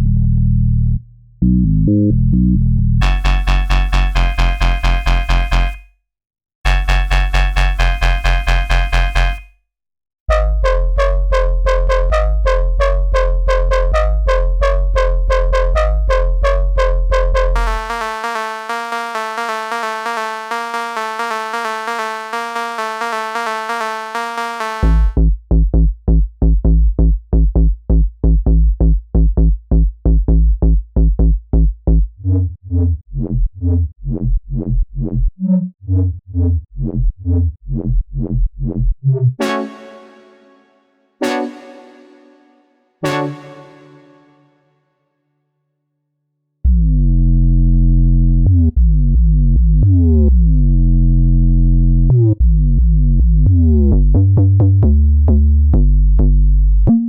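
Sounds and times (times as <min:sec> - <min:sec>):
synth bass: 0:00.0 - 0:05.8, 0:06.7 - 0:09.5, 0:10.3 - 0:40.6, 0:41.2 - 0:44.3, 0:46.7 - 0:57.0
held synth chord: 0:17.6 - 0:25.1, 0:39.4 - 0:44.6.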